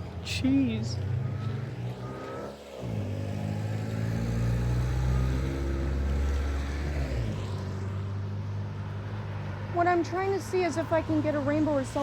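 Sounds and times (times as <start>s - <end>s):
vehicle engine passing by: 0.0s - 12.0s.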